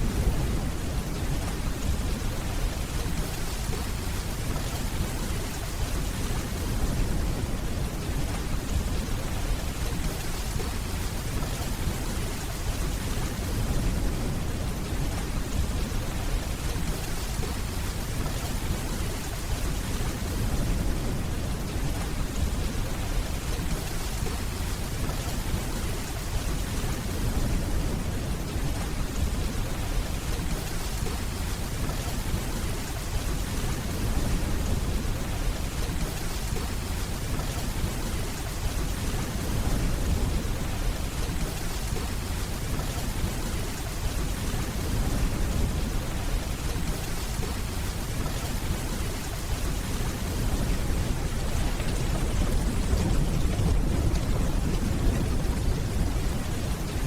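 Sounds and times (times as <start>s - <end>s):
heavy rain: 0.0s - 57.0s
distant thunder rumbling: 43.2s - 57.0s.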